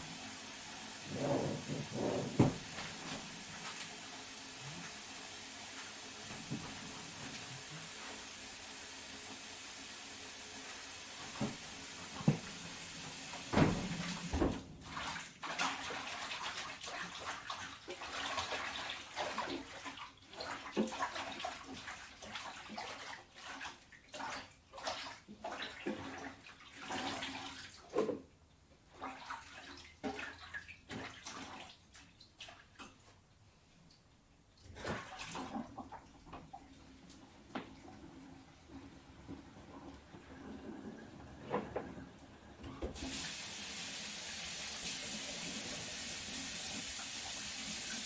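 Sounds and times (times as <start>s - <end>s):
tap water rushing into sink: 0.0s - 17.6s, 37.5s - 48.0s
water splashing and sloshing: 1.0s - 4.8s, 11.2s - 33.3s, 34.5s - 42.1s.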